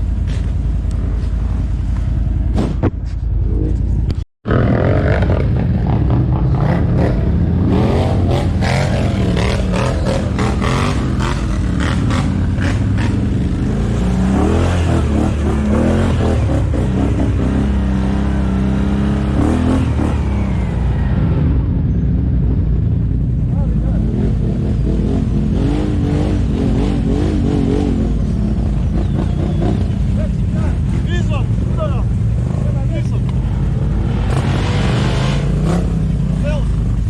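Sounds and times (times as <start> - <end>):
atv engine revving: 4.5 - 21.6, 23.4 - 37.0.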